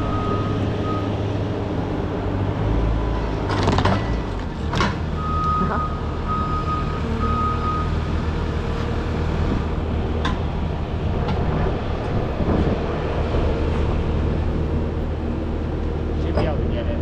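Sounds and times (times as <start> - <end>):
reversing beeper: 0.0 - 1.2
heavy machine engine running: 0.0 - 17.0.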